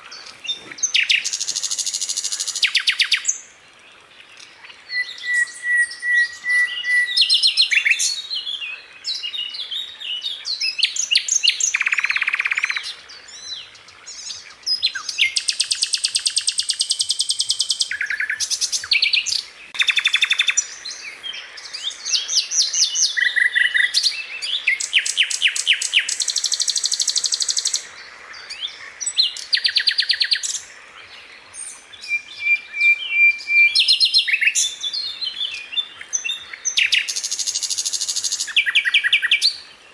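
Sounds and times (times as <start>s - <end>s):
bird singing trills: 4.4s - 39.7s.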